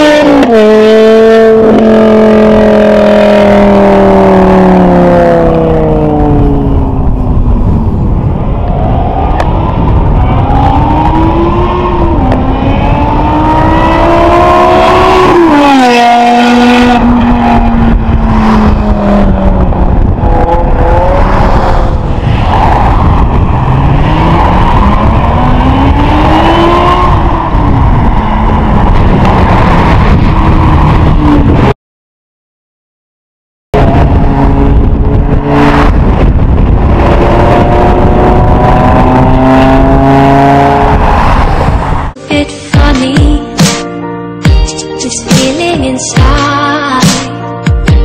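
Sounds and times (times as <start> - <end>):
car engine revving hard: 0.0 - 6.7, 10.4 - 22.1, 23.2 - 31.7, 33.8 - 41.8.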